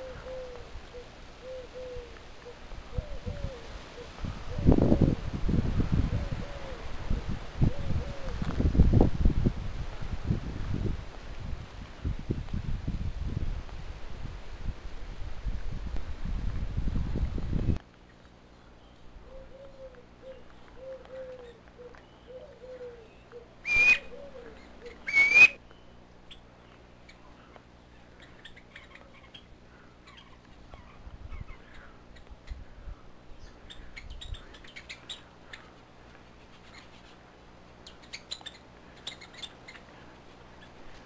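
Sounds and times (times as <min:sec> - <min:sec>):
bird low wavering notes: 0:00.0 - 0:04.8, 0:18.1 - 0:32.7
shrill bird calls: 0:18.8 - 0:26.4.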